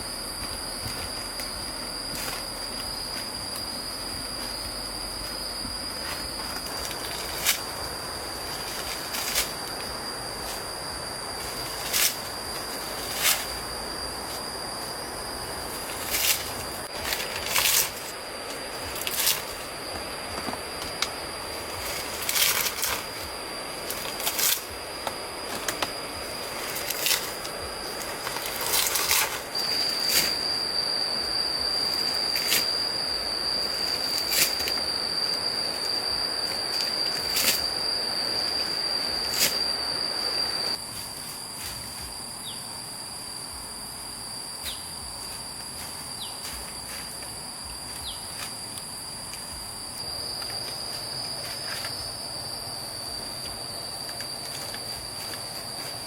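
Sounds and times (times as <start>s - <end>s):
insects buzzing: 0.0s - 56.0s.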